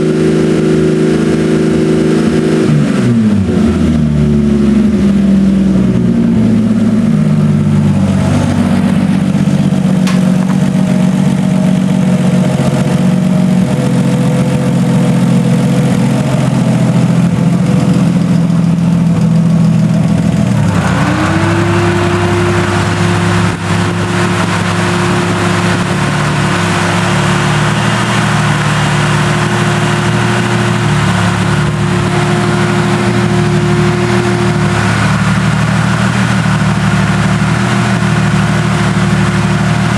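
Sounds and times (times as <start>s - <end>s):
car engine running: 0.0s - 39.9s
steady rising tone: 4.7s - 19.2s, 20.3s - 37.3s.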